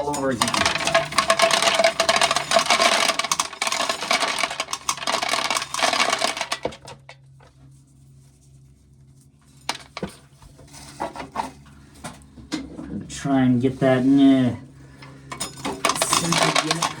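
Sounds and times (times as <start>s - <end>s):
corn kernels rattling into container: 0.1s - 7.0s, 9.7s - 10.2s, 15.6s - 17.0s.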